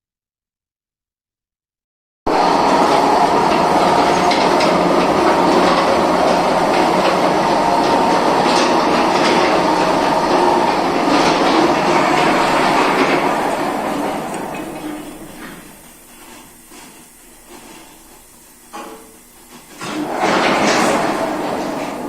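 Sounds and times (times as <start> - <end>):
mechanical rumble and clatter: 2.3 - 15.8, 19.7 - 22.0.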